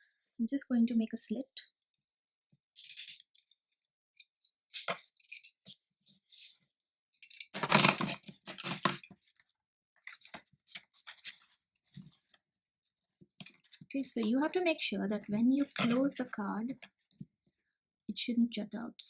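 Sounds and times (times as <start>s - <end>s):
paper handling noises: 4.8s - 9.4s, 10.0s - 12.4s.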